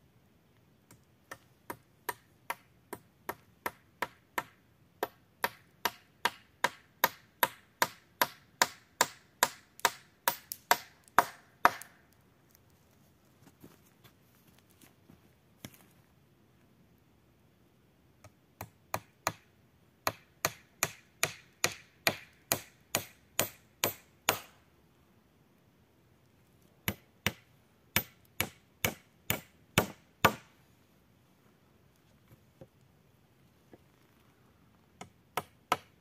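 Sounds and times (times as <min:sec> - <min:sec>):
tool striking wood: 0:28.0 - 0:30.5.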